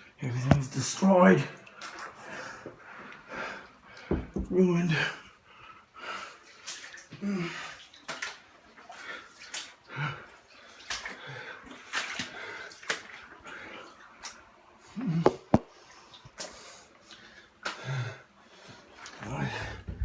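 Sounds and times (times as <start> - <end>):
water sloshing from wading: 6.4 - 17.6.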